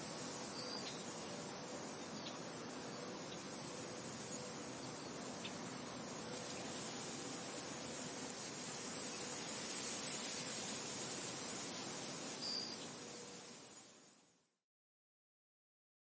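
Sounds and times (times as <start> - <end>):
wind blowing: 0.0 - 14.1.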